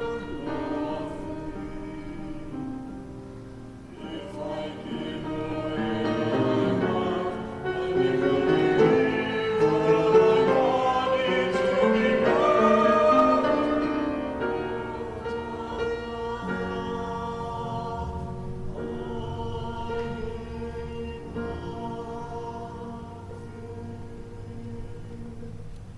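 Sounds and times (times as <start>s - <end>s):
choir singing a hymn: 0.0s - 25.9s.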